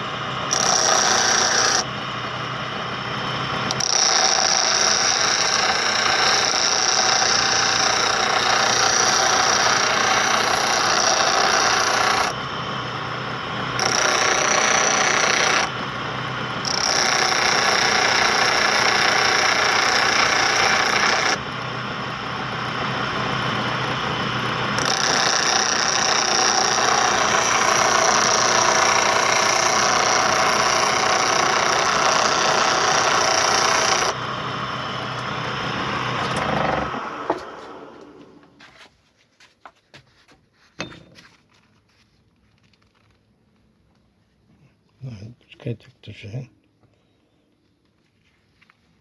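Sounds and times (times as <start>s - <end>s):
power tool motor running: 0.0s - 38.5s.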